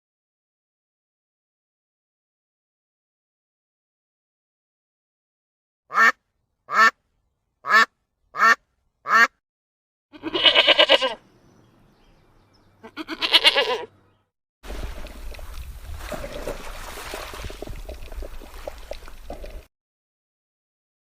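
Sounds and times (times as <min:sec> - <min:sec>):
farm animal calls: 0:10.1 - 0:14.2.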